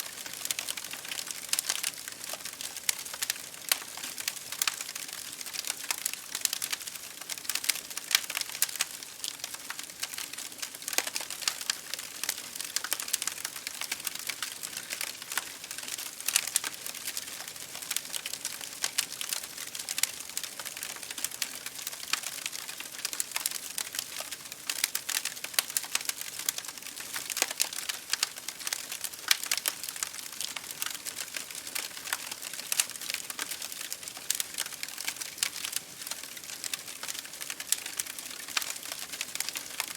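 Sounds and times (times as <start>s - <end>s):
wood fire crackling: 0.0s - 39.9s
rain hitting a window: 0.1s - 39.9s.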